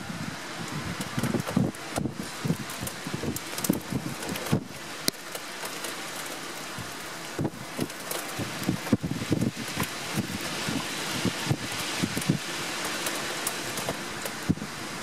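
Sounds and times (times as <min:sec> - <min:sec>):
close raindrop patters: 0:00.0 - 0:15.0
rain hiss: 0:00.0 - 0:15.0.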